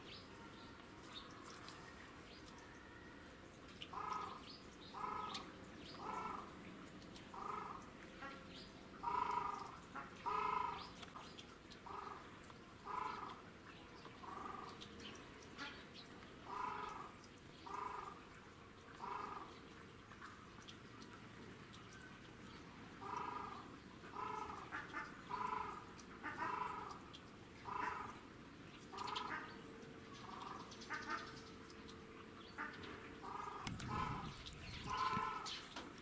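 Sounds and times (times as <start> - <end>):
bird calling: 32.6 - 35.8.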